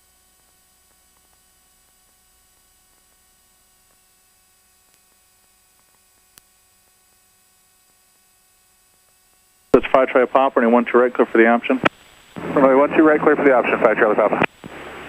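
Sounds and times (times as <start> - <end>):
radio static hiss and hum: 0.0 - 15.0.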